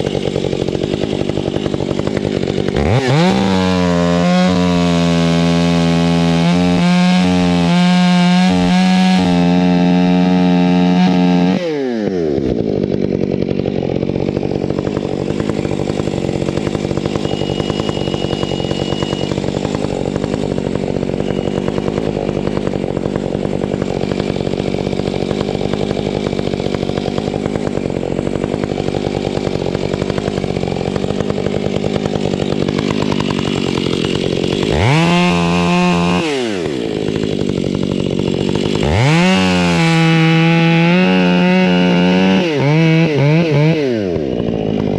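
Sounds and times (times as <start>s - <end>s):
chainsaw idling and revving: 0.0s - 44.9s.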